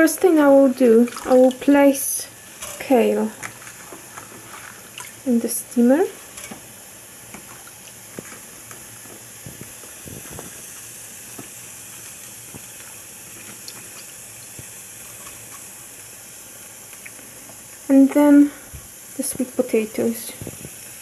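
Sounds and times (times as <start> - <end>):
pots hissing on a stovetop: 0.0 - 21.0.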